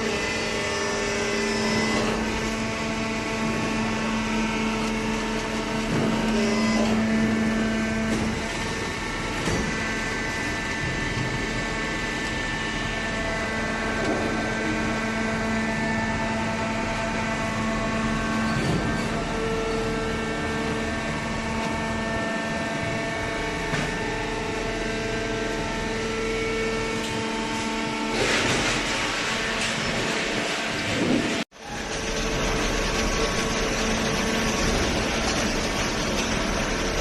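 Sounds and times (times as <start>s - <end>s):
baler machine humming: 30.2s - 37.0s.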